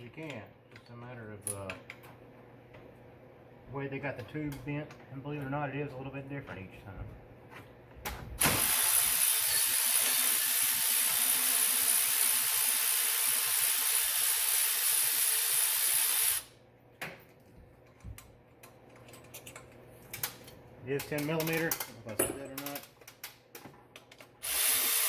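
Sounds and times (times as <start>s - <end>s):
air ratchet running: 24.4s - 25.0s.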